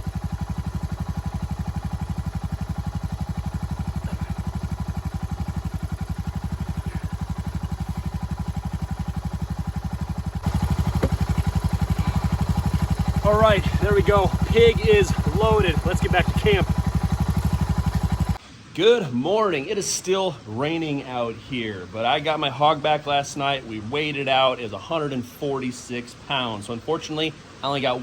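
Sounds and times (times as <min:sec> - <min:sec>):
atv engine idling: 0:00.0 - 0:18.4.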